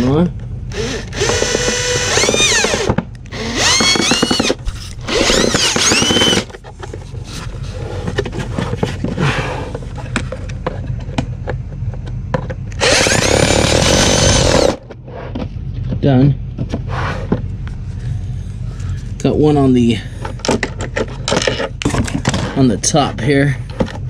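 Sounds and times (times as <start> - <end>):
power drill driving screws: 0.7 - 6.5, 12.8 - 14.8.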